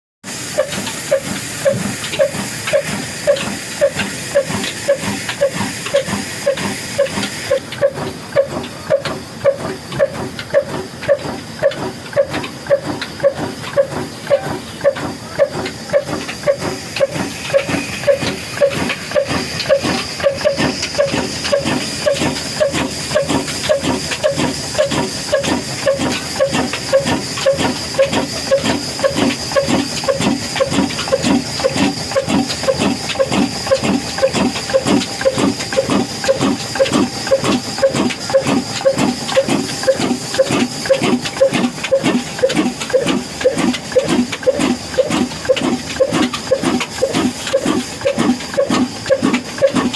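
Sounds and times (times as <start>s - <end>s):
stationary engine exhaust chuffing: 0.2s - 49.9s.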